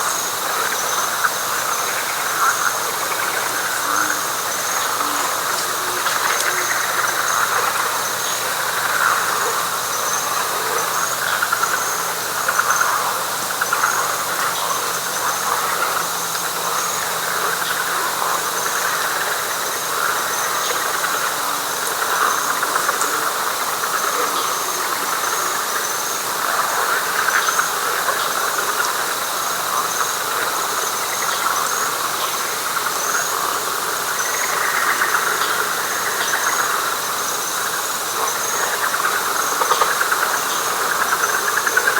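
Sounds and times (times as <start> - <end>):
frog chorus: 0.0 - 41.9
high insect trill: 0.0 - 41.9
pulsing insect call: 0.0 - 41.9.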